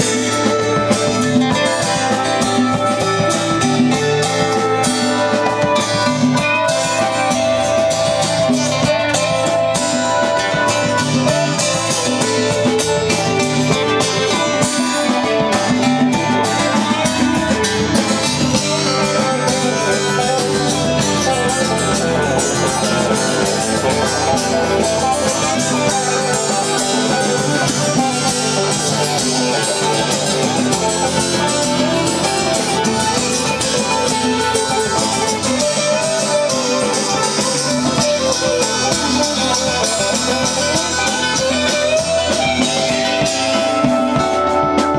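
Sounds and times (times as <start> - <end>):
guitars playing: 0.0 - 44.9
steady percussion: 0.0 - 44.9.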